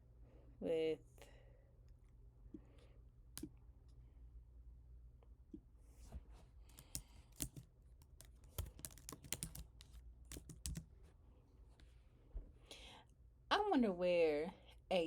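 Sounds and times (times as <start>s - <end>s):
typing on computer keyboard: 6.7s - 10.9s.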